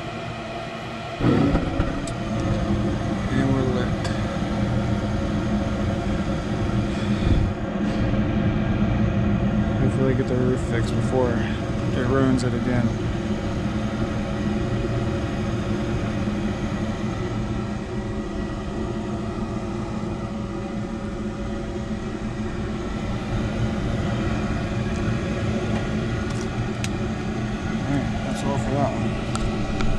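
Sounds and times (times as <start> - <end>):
gas furnace humming: 0.0 - 29.9.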